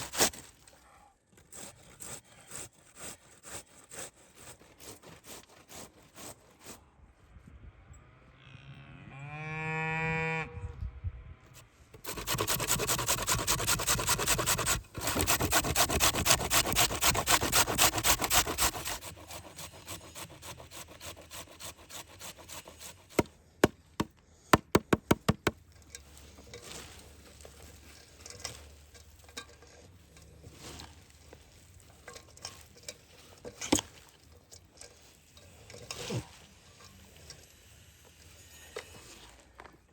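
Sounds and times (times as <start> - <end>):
cow mooing: 8.4 - 10.6
fast rhythmic rasping: 12.0 - 23.3
sharp knocks: 23.2 - 25.6.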